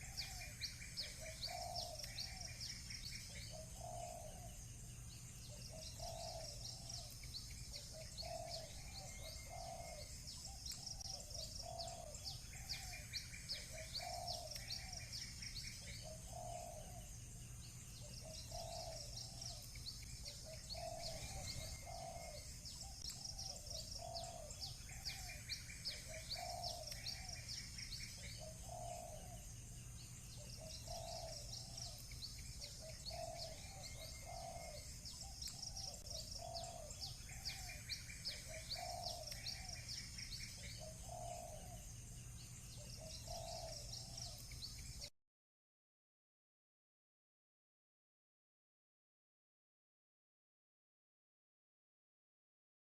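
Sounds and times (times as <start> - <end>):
doves cooing: 0.0 - 4.6, 5.5 - 17.2, 17.9 - 29.6, 30.3 - 41.9, 42.8 - 44.6
songbird chirping: 0.0 - 45.1
steady low hum: 0.0 - 45.1.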